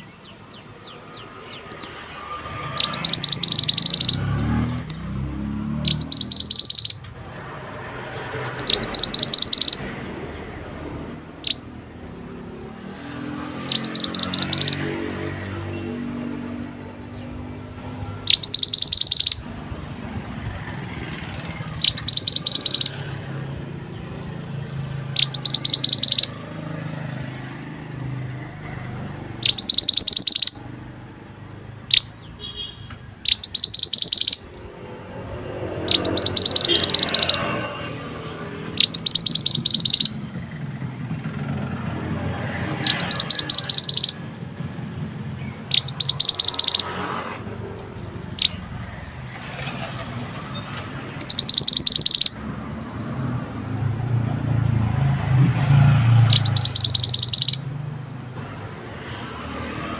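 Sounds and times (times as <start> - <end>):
bird trilling: 0.0 - 40.5, 41.3 - 49.1, 49.9 - 55.0, 56.1 - 59.5.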